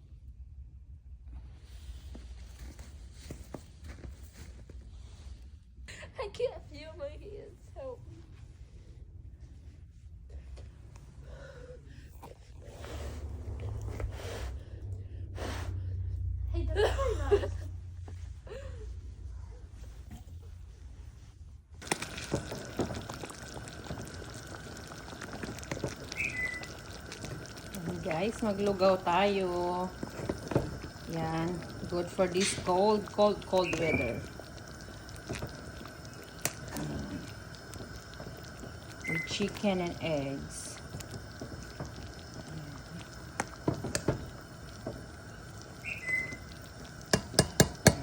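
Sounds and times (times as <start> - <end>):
pot of porridge bubbling: 21.8 - 48.0
utensil knocking against pot: 47.1 - 48.0.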